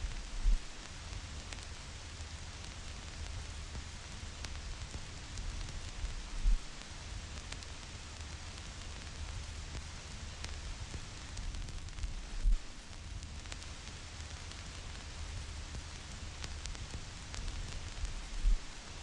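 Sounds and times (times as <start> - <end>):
vinyl record hiss and crackle: 0.0 - 19.0.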